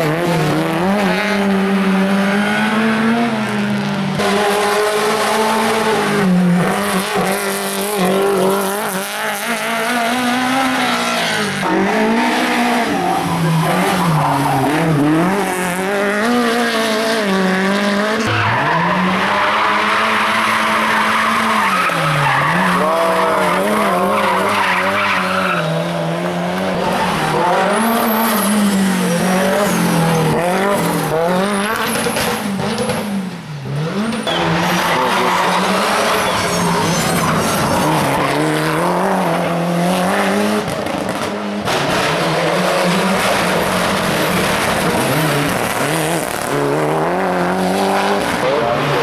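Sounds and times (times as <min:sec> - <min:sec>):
race car engine revving: 0:00.0 - 0:49.0
tyres squealing: 0:34.2 - 0:38.5.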